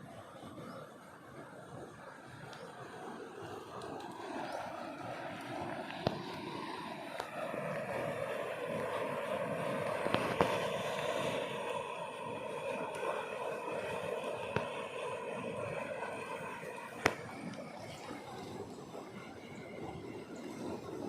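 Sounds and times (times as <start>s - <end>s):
motor droning: 0.2s - 21.0s.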